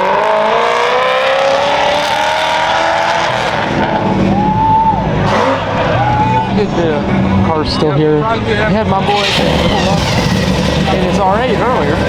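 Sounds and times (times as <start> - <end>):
car engine accelerating hard: 0.0 - 12.0
high squeal: 9.1 - 11.4.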